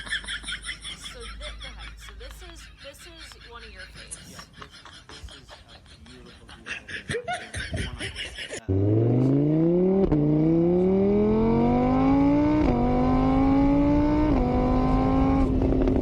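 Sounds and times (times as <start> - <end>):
vehicle engine accelerating: 8.6 - 16.0.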